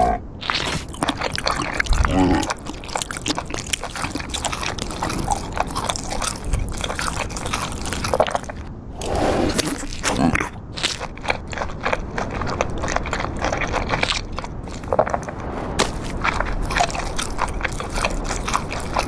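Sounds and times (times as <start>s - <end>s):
crunching and crackling: 0.0s - 8.7s, 9.5s - 19.0s.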